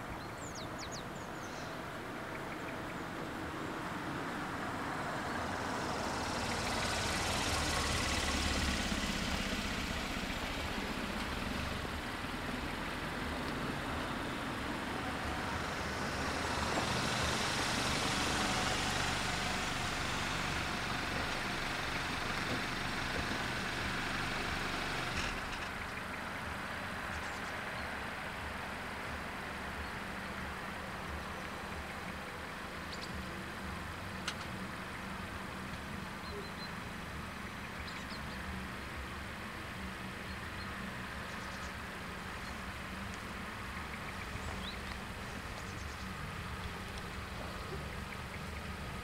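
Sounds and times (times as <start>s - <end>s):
car engines idling: 0.0s - 49.0s
broad rushing noise: 3.3s - 25.6s.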